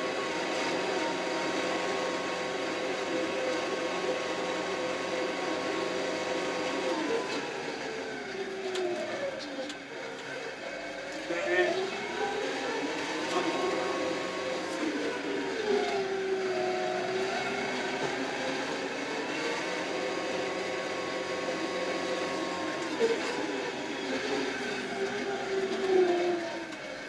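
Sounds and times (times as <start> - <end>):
tractor diesel engine under load: 11.9 - 27.0.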